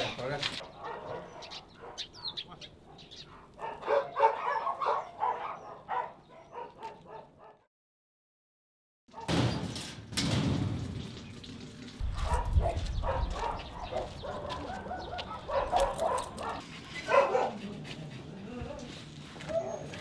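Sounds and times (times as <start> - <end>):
dogs barking and yipping: 0.6 - 7.7, 12.0 - 17.6, 19.4 - 20.0.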